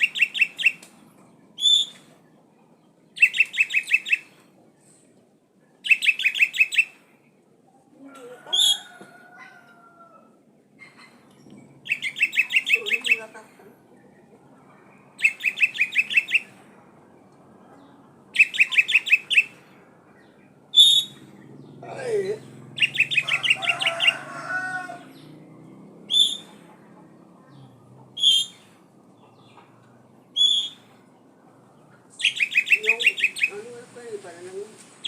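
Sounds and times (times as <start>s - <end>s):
bird singing trilled phrases: 0.0s - 0.8s, 1.6s - 2.1s, 3.2s - 4.3s, 5.8s - 7.0s, 10.8s - 13.3s, 15.1s - 16.5s, 18.3s - 19.6s, 20.2s - 24.1s, 26.1s - 26.5s, 28.2s - 28.7s, 30.3s - 30.9s, 32.1s - 33.8s.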